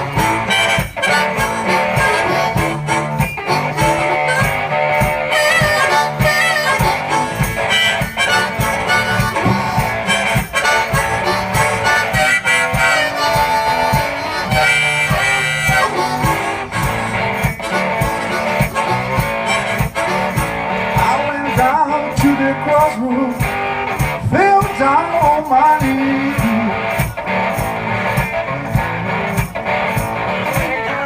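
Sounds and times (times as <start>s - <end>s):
harmonica solo: 0.0s - 24.2s
guitar: 0.0s - 31.0s
steady drum beat: 0.0s - 31.0s.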